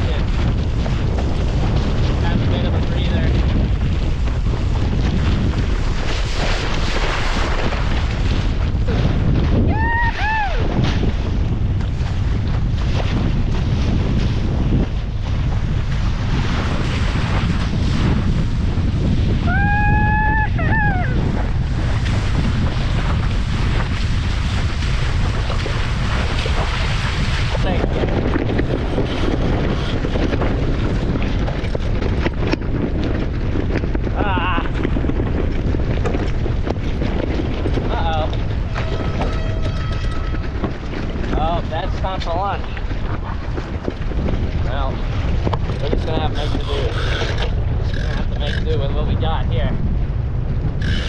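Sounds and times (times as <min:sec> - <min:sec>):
strong wind buffeting microphone: 0:00.0 - 0:51.0
water rushing and splashing: 0:19.3 - 0:31.4.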